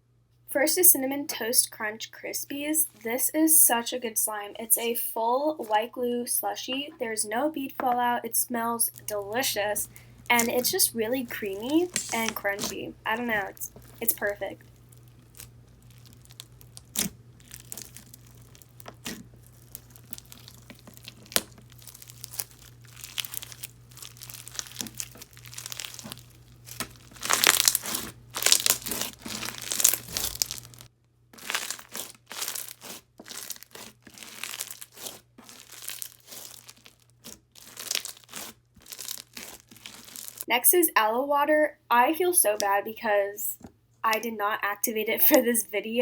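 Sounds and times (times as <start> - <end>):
slime squished crackling and popping: 9.0 - 40.5.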